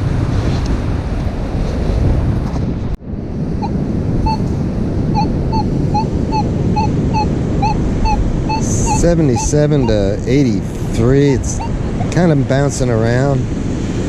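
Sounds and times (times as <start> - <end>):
wind on microphone: 0.0 - 14.0
metal detector beeping: 3.6 - 4.5, 5.1 - 10.5, 11.4 - 12.1.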